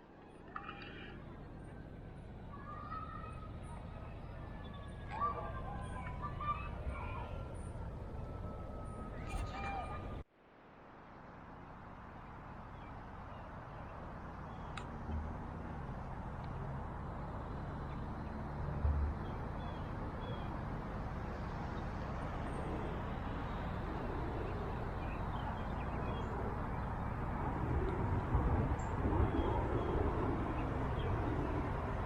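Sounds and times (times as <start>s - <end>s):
distant traffic rumble: 0.0s - 32.0s
faint murmuring voices: 2.4s - 10.2s.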